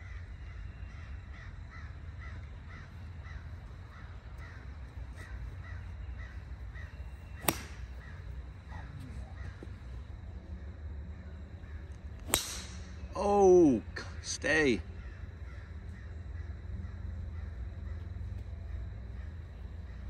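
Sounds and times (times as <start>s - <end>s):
golf club striking ball: 7.3s - 8.0s, 12.2s - 13.1s.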